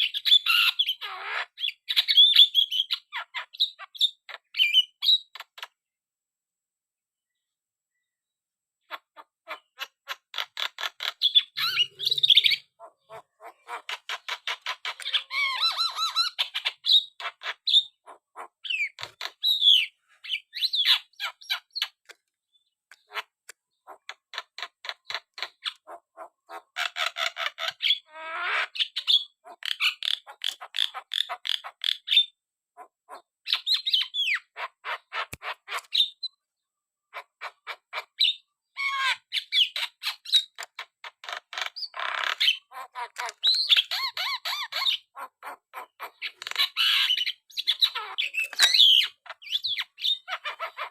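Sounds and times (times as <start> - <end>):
bird squawks: 8.8 - 22.0, 22.9 - 36.4, 37.1 - 50.9
bird singing rattling clicks: 13.9 - 15.2, 21.5 - 25.8, 43.2 - 43.9, 46.2 - 49.7.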